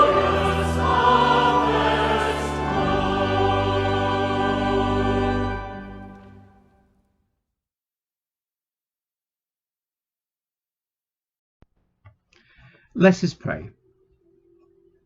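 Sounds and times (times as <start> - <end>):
choir singing with accompaniment: 0.0 - 6.7.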